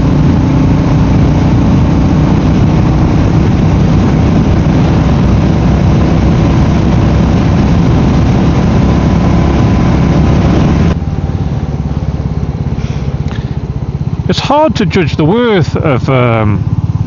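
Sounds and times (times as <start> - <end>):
wind rush on microphone: 0.0 - 11.0
motorcycle engine running: 0.0 - 17.0.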